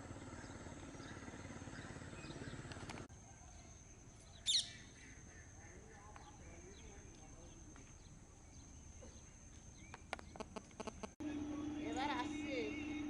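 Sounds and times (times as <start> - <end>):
engine pulsing drone: 0.0 - 3.1, 10.8 - 13.0
faint outdoor ambience: 0.0 - 13.0.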